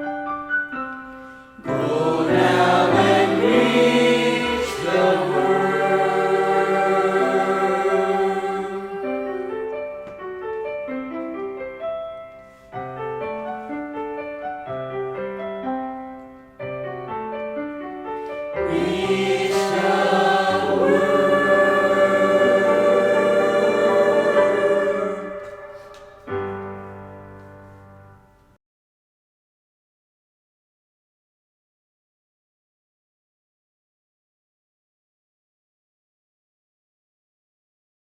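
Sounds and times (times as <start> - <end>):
instrumental accompaniment: 0.0 - 28.5
choir singing worship song: 1.6 - 9.6, 18.6 - 26.6.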